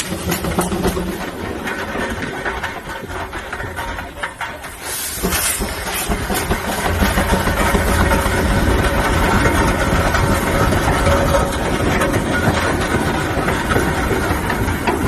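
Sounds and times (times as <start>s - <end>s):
steam traction engine rumbling: 0.0s - 15.0s
steam hissing: 4.6s - 8.0s.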